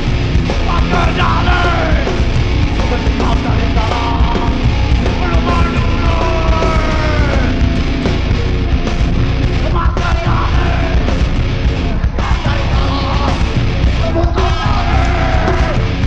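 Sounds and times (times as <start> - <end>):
bass guitar: 0.0 - 16.0
distorted guitars: 0.0 - 16.0
pounding drums: 0.0 - 16.0
person yelling vocals: 3.3 - 7.6, 14.0 - 15.9.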